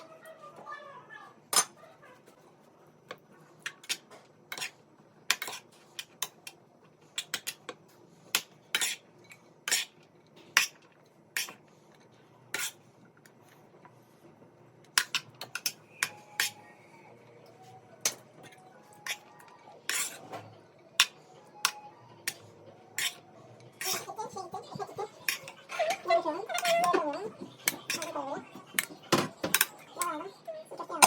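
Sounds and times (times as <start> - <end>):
cutlery clinking against plates: 3.6 - 6.6, 7.2 - 11.6, 15.0 - 16.7, 18.0 - 30.2.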